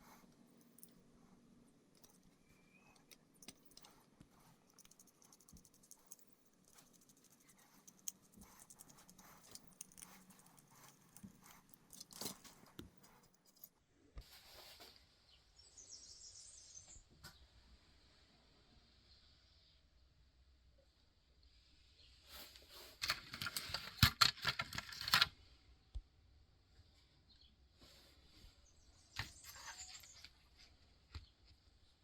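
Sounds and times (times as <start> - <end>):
plastic toy parts clicking: 23.0 - 25.3.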